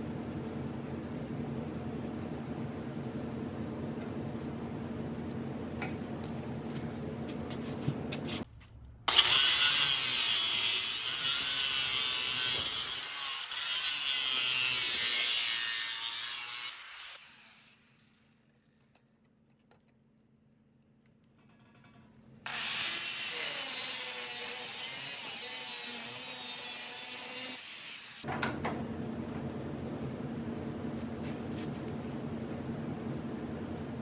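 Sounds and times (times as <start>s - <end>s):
power tool cutting pipe: 9.1s - 18.1s, 22.5s - 28.3s
steady low hum: 28.3s - 34.0s.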